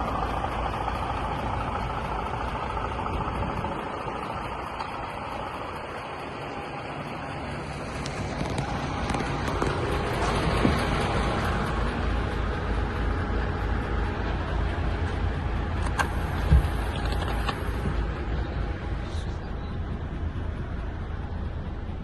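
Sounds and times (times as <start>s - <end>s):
diesel truck engine running: 0.0s - 22.0s
thump: 16.4s - 16.8s.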